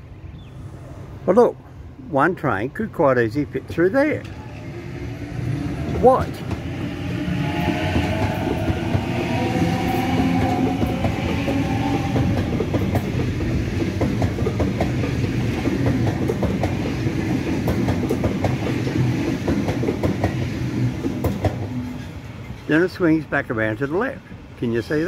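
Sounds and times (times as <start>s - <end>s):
train rumble: 0.0s - 25.0s
train wheels clicking over rail joints: 5.2s - 22.8s.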